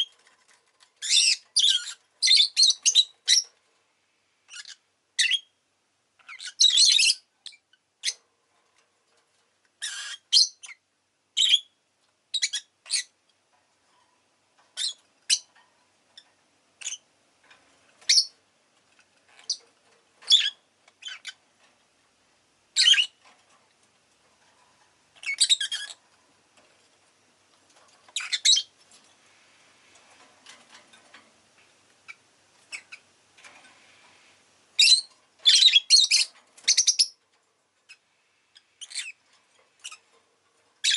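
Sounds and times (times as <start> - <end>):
bird chirping high-pitched: 1.0 - 3.5, 4.5 - 5.5, 6.2 - 8.2, 9.8 - 10.8, 11.4 - 13.1, 14.8 - 15.5, 16.8 - 17.0, 18.1 - 18.4, 20.3 - 21.4, 22.8 - 23.2, 25.2 - 26.0, 28.1 - 28.7, 34.8 - 37.2, 38.6 - 39.2.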